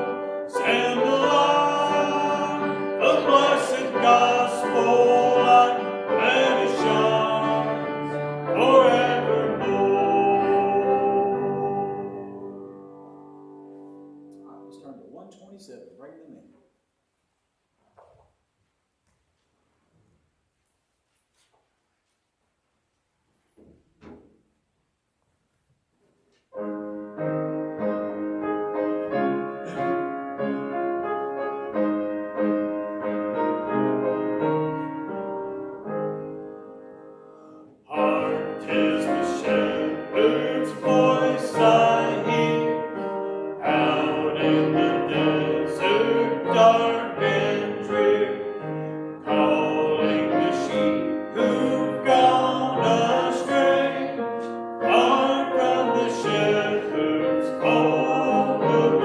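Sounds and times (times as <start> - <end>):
congregation singing a hymn: 0.0 - 13.6, 37.8 - 59.0
piano hymn introduction: 0.0 - 19.0, 19.7 - 59.0.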